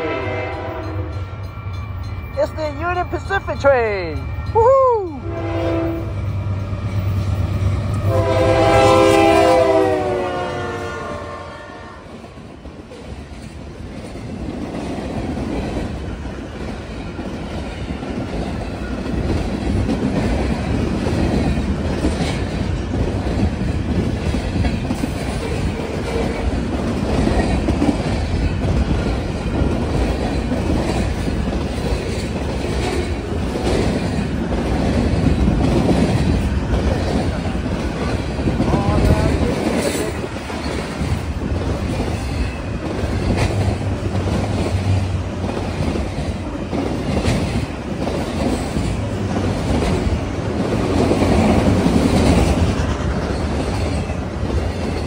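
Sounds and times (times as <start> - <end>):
locomotive horn: 0.0 - 1.2, 5.2 - 6.2, 8.0 - 12.1
freight cars rumbling and clacking: 12.8 - 55.0.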